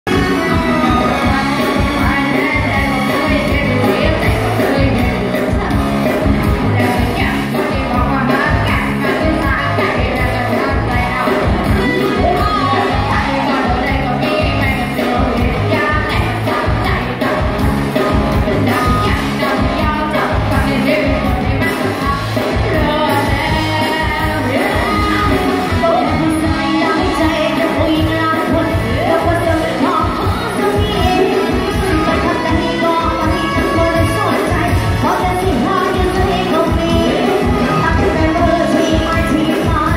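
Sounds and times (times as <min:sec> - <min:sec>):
live band playing: 0:00.0 - 0:39.9
person singing: 0:00.0 - 0:39.9
repeating bass line: 0:00.0 - 0:39.9.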